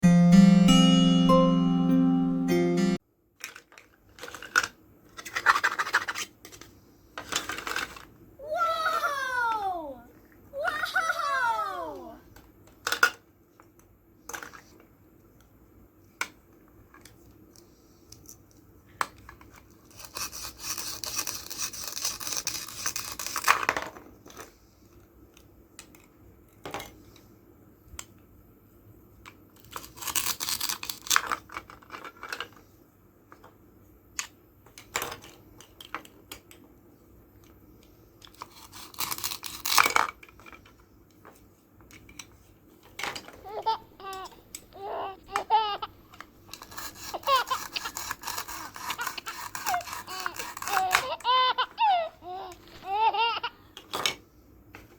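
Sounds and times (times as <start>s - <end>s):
toy halves pulling apart rasp: 46.5s - 51.5s.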